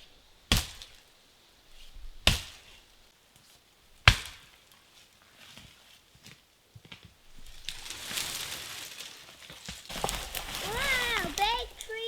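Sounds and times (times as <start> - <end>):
axe chopping wood: 0.5 - 0.9, 2.2 - 2.8, 4.0 - 4.5.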